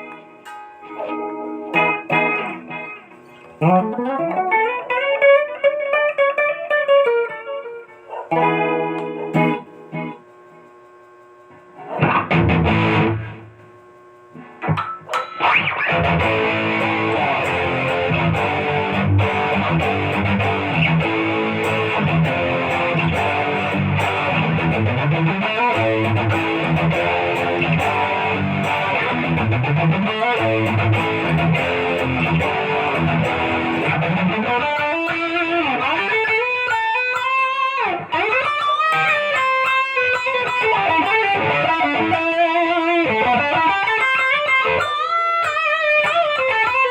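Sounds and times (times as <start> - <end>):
distorted electric guitar: 0.0 - 46.9.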